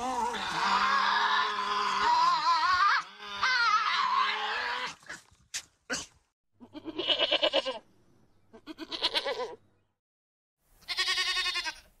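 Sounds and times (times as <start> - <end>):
goat bleating: 6.6 - 7.8, 8.5 - 9.6, 10.8 - 12.0.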